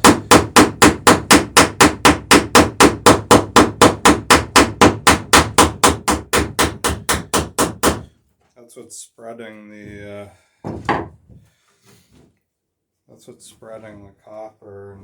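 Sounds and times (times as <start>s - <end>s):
hammer striking copper rivet: 0.0s - 8.1s.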